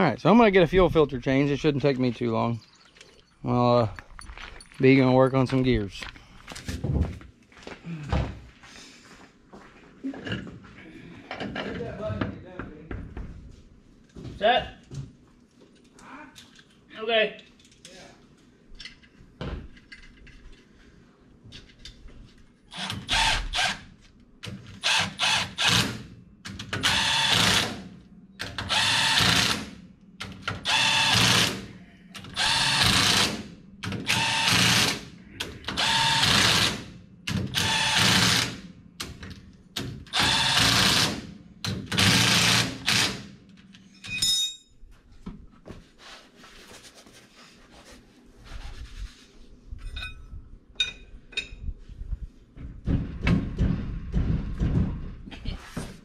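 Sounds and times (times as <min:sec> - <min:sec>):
handheld power tool bursts: 0:26.8 - 0:27.8, 0:28.6 - 0:29.7, 0:30.6 - 0:33.4, 0:34.0 - 0:35.1, 0:35.7 - 0:38.6, 0:40.1 - 0:41.3.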